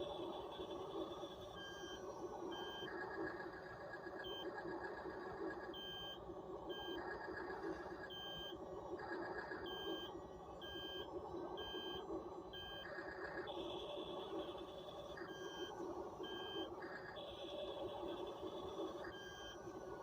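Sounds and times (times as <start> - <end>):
electronic reversing beep: 9.3 - 12.0, 12.6 - 19.7.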